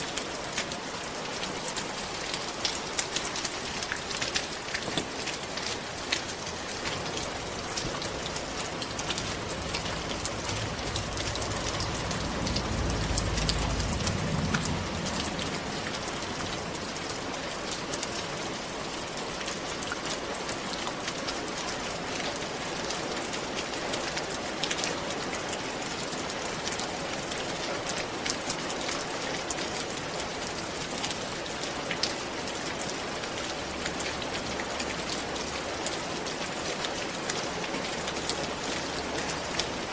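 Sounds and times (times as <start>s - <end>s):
rain on a roof: 0.0s - 39.9s
low rumble: 7.2s - 17.8s.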